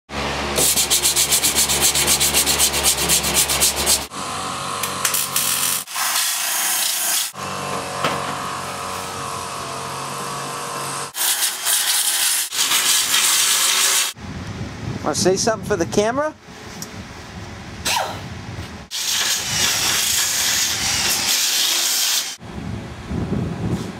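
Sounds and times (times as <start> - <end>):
power tool grinding metal: 0.5 - 14.2, 18.9 - 22.4
rapid rhythmic sanding strokes: 0.6 - 4.1, 11.1 - 14.2, 18.9 - 22.4.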